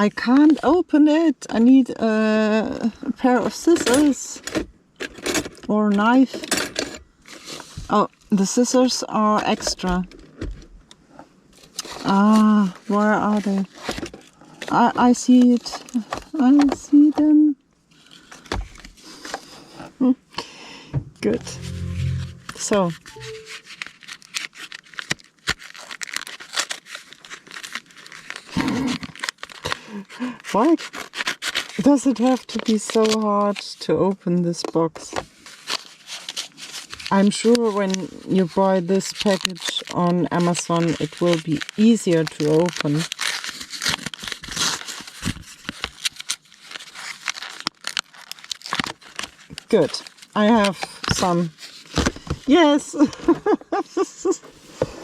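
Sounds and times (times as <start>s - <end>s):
packaging crackling and ripping: 23.8s - 30.1s, 30.8s - 33.2s, 38.9s - 50.4s.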